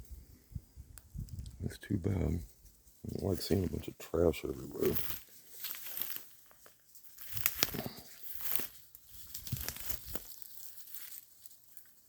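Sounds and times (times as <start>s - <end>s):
dry leaves and twigs crackling: 0.0s - 12.0s
twigs snapping: 4.8s - 11.9s.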